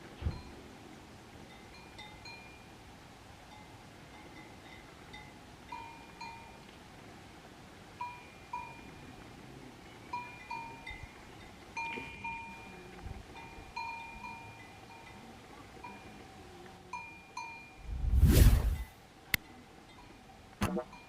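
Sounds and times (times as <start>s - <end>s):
livestock bell clanking: 3.5s - 6.6s, 10.1s - 16.2s.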